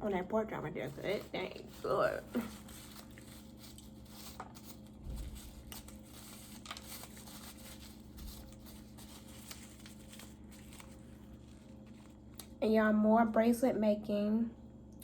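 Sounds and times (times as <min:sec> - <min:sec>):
small clicks and rustles of food: 0:00.9 - 0:12.6
soft chewing: 0:01.0 - 0:12.6.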